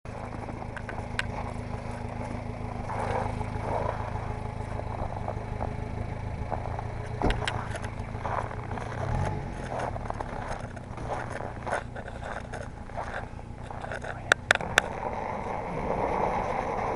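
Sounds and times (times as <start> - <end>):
small engine running: 0.1 - 16.9
clicks and rattles: 7.0 - 14.9.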